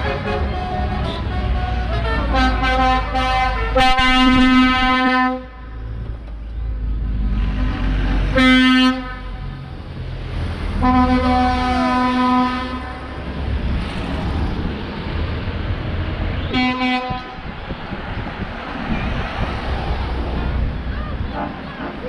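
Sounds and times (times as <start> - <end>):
truck air horn blasts: 0.0 - 5.8, 8.3 - 9.5, 10.8 - 13.1, 16.4 - 17.4.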